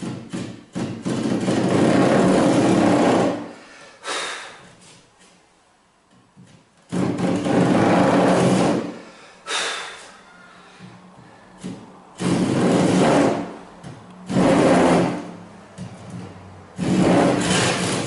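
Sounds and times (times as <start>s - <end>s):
handsaw cutting timber: 12.2s - 13.5s, 14.3s - 15.3s, 16.8s - 18.0s.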